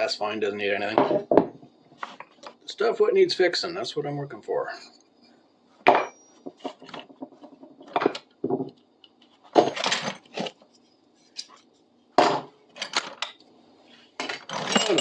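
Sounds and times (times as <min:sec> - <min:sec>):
metal tools clunking on workbench: 0:14.2 - 0:15.0.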